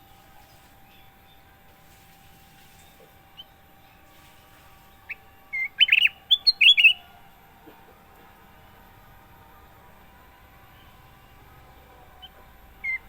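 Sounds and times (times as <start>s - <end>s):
bulbul singing: 4.8s - 7.2s, 10.8s - 13.0s.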